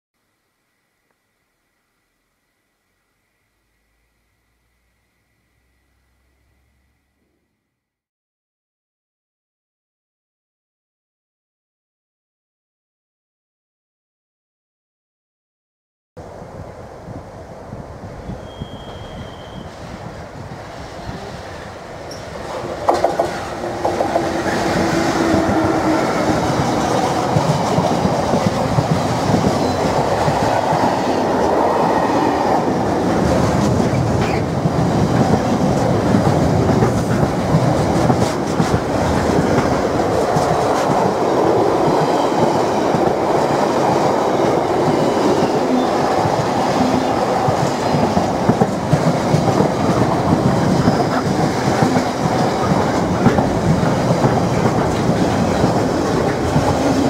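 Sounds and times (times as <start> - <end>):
diesel locomotive engine: 1.0 - 7.5, 16.2 - 57.0
wheels clattering over track: 22.1 - 25.5.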